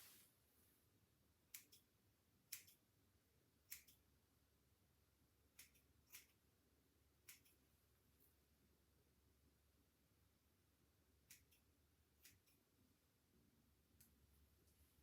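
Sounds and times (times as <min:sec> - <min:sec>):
scissors snipping: 0:01.5 - 0:01.9, 0:02.5 - 0:02.8, 0:03.7 - 0:04.0, 0:05.5 - 0:06.4, 0:07.2 - 0:07.6, 0:11.2 - 0:12.6.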